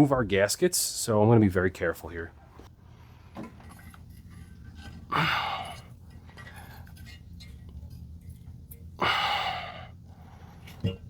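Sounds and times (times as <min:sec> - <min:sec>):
faint low hum: 0:00.0 - 0:11.0
man exhaling hard: 0:05.1 - 0:05.8, 0:09.0 - 0:10.0.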